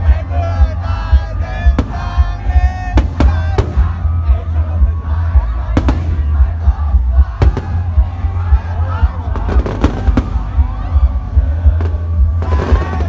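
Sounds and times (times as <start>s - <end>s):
person singing: 0.0s - 13.0s
fireworks bangs: 1.7s - 4.5s, 5.7s - 6.6s, 7.4s - 8.6s, 9.3s - 10.8s.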